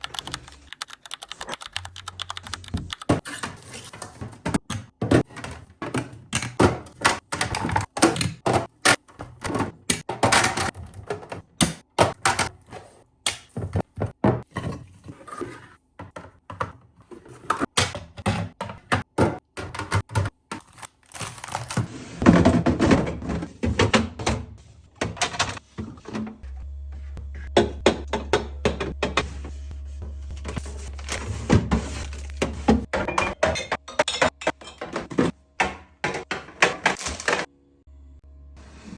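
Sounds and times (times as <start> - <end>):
containers clacking on fridge shelves: 3.1 - 26.2, 31.7 - 37.5.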